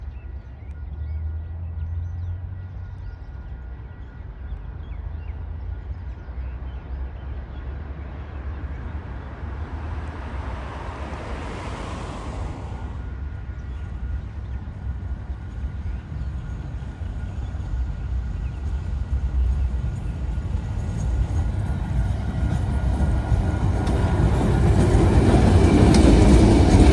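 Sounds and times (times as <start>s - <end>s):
locomotive engine rumble: 0.0s - 26.9s
broad rushing noise: 9.0s - 13.6s.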